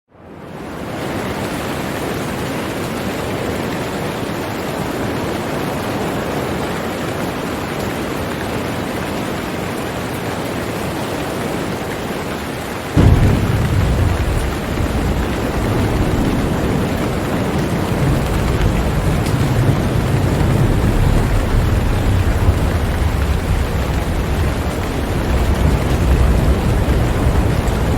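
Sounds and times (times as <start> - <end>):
heavy rain hiss: 7.4 - 27.9
deep rumble of thunder: 13.0 - 27.9.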